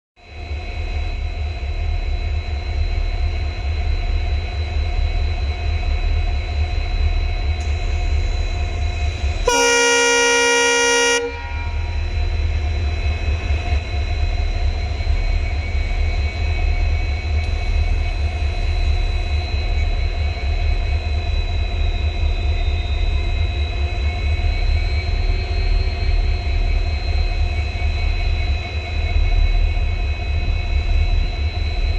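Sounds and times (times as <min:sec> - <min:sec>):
locomotive low rumble: 0:00.3 - 0:31.9
high steady whine: 0:09.2 - 0:13.7
locomotive horn: 0:09.4 - 0:12.1.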